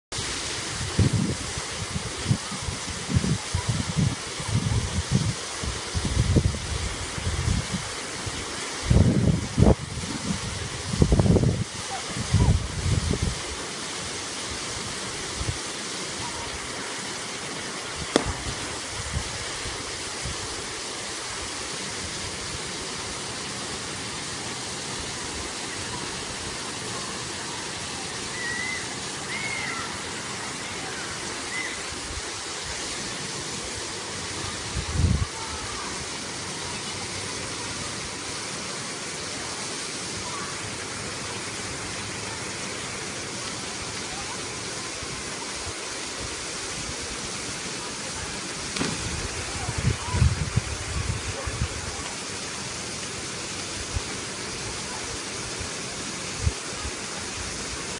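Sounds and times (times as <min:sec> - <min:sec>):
waterfall roaring: 0:00.1 - 0:57.9
low thumps: 0:18.1 - 0:19.3.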